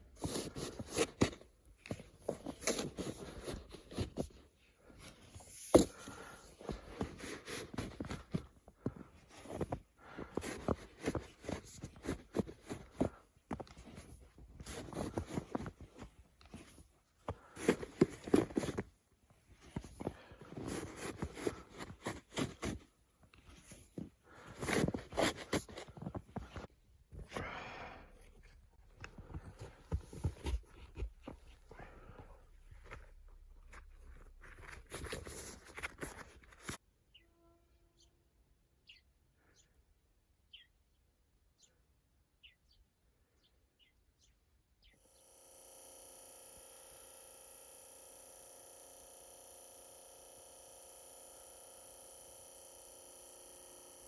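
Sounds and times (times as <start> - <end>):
handling crunches and scrapes: 0.0 - 36.8
shovel scraping snow: 9.3 - 18.9, 19.6 - 22.9, 23.5 - 26.7.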